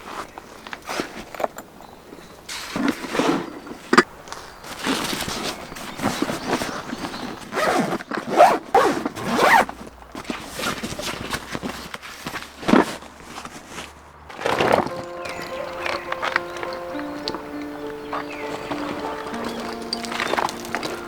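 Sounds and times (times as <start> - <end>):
zipper being pulled: 7.4 - 9.8.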